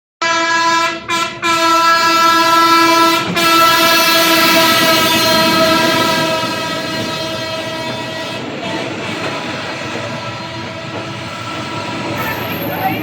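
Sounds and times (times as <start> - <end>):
train horn blasts: 0.2 - 9.1, 10.2 - 11.1.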